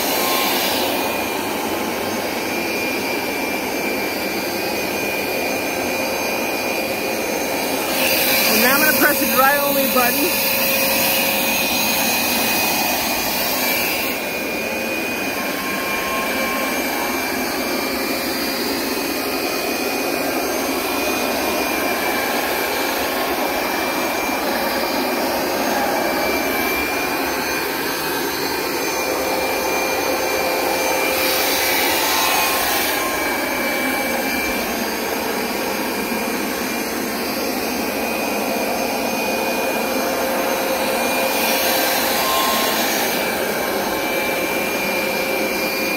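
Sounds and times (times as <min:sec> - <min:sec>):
carpet cleaner suction motor: 0:00.0 - 0:45.9.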